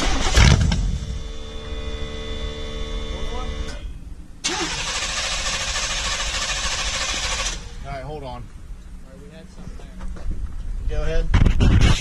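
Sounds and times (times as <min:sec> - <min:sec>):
truck engine running: 0:00.0 - 0:09.0.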